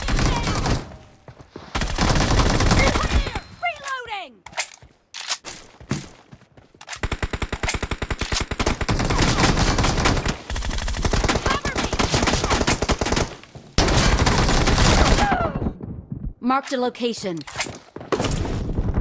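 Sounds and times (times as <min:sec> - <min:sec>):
video game automatic gunfire: 0:01.8 - 0:03.2, 0:07.0 - 0:15.3.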